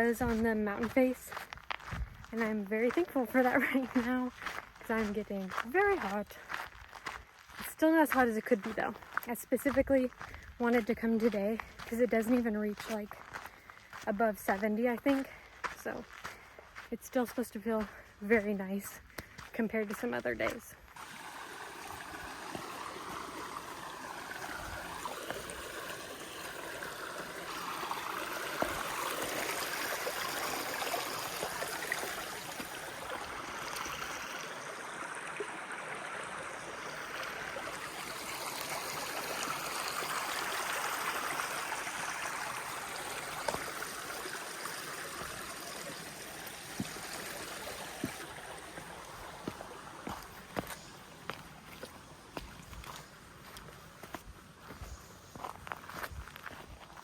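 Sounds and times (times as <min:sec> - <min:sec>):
running water gurgling: 0:20.9 - 0:57.0.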